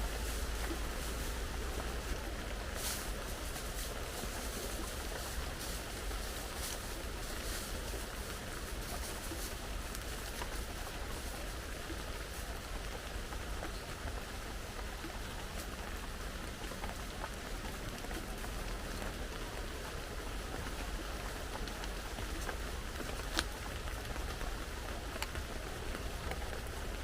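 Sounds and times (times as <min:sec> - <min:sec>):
heavy rain: 0:00.0 - 0:27.0.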